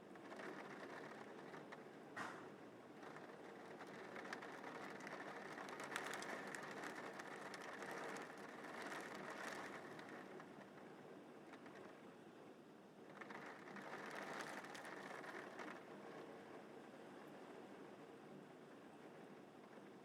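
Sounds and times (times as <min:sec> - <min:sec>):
rain falling: 0:00.2 - 0:01.6, 0:03.0 - 0:10.6, 0:13.1 - 0:15.8
raindrop ticks: 0:00.2 - 0:01.8, 0:03.0 - 0:10.7, 0:13.1 - 0:15.8.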